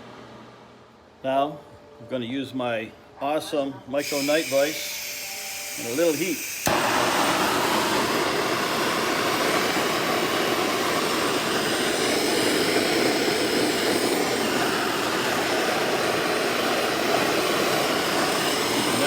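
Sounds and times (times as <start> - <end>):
gas torch flame hissing: 4.0 - 19.0.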